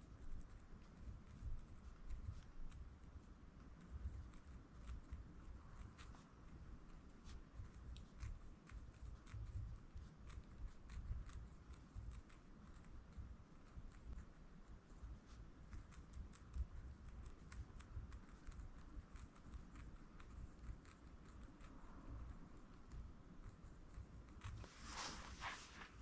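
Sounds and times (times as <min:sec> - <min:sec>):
paper rustling: 0:24.6 - 0:26.0.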